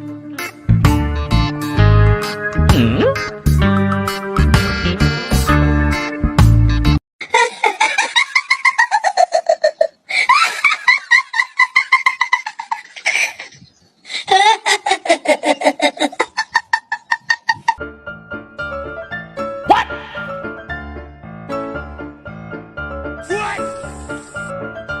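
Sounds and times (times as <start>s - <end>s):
high-pitched laughter: 7.2s - 17.8s.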